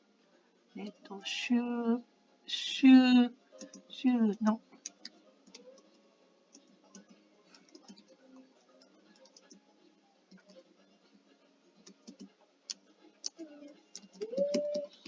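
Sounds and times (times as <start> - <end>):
faint keyboard typing: 3.6 - 3.9, 4.8 - 9.7, 10.3 - 10.6, 11.8 - 15.0.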